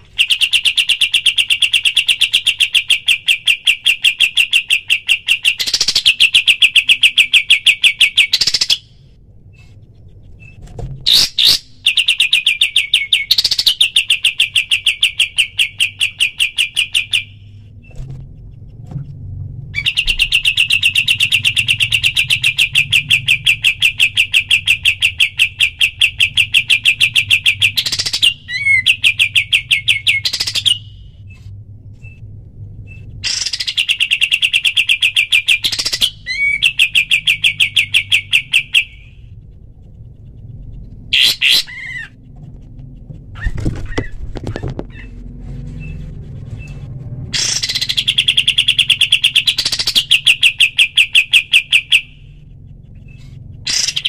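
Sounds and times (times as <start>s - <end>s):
songbird trilling: 0.2s - 8.9s, 11.1s - 17.4s, 19.8s - 31.0s, 32.9s - 39.2s, 41.1s - 42.2s, 47.4s - 52.2s, 53.0s - 54.0s.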